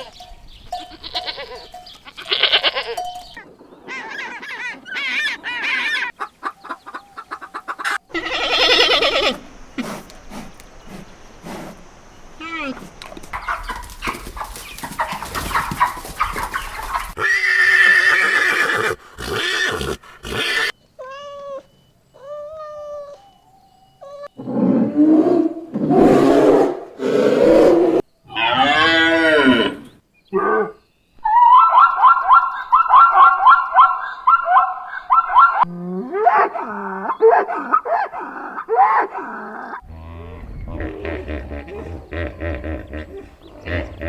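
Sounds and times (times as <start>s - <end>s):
low drawn-out animal calls: 33.6s - 44.0s.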